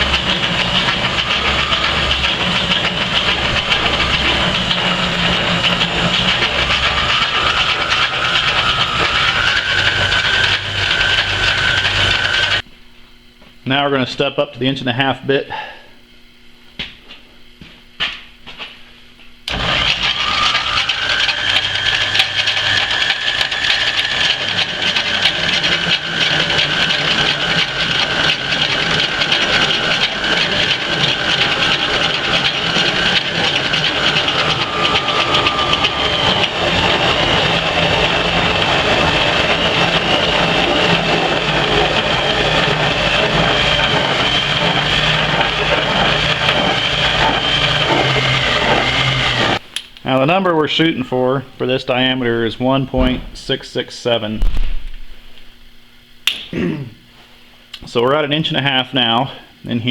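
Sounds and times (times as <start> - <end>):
drill bit cutting steel: 0.0 - 12.6, 19.5 - 49.6
metal lathe running: 0.0 - 12.6, 19.5 - 49.6
steady high whine: 0.0 - 59.9.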